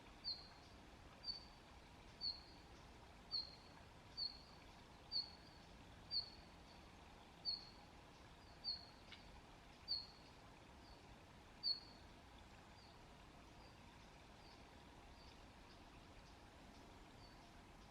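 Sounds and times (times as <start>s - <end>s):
songbird calling: 0.2s - 0.6s, 2.2s - 2.5s, 3.3s - 3.6s, 4.2s - 4.5s, 5.1s - 5.5s, 7.4s - 7.8s, 8.6s - 8.9s, 9.9s - 10.2s, 11.6s - 12.0s.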